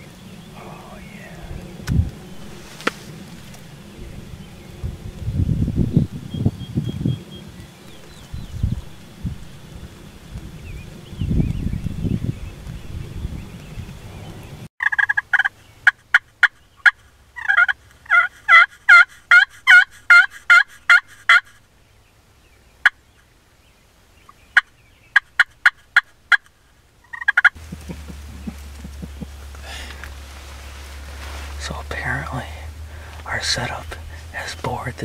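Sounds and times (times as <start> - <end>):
turkey call clucks: 14.8 - 21.6, 24.3 - 30.2
turkey call yelps: 14.8 - 21.6, 27.1 - 29.5.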